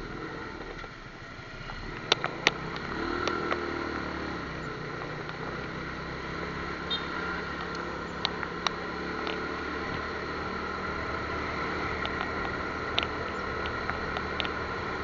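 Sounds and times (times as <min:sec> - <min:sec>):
motorcycle engine running: 0:00.0 - 0:15.0
sharp clicks: 0:01.9 - 0:05.4, 0:07.5 - 0:10.1, 0:11.8 - 0:15.0.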